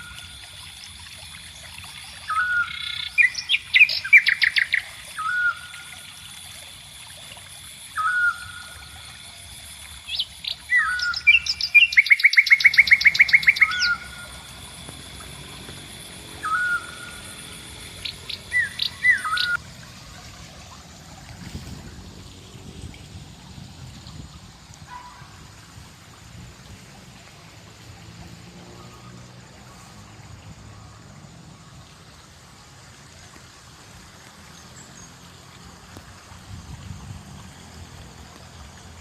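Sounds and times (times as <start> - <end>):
songbird whistles and trills: 2.2 - 6.1, 7.9 - 9.0, 10.1 - 14.4, 16.3 - 19.6.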